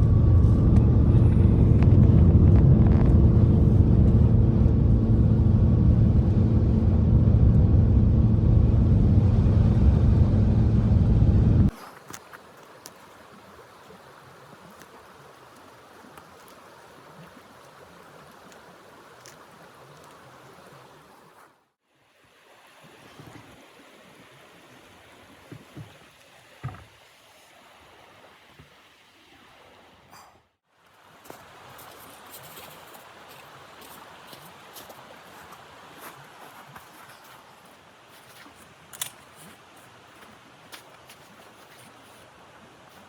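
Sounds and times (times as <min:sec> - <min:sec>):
steady rushing noise: 0:00.0 - 0:11.7.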